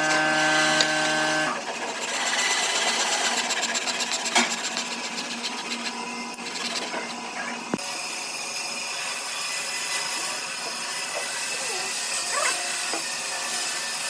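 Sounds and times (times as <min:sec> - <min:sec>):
tool rubbing on wood: 0:00.0 - 0:07.8
power tool motor humming: 0:00.0 - 0:14.0.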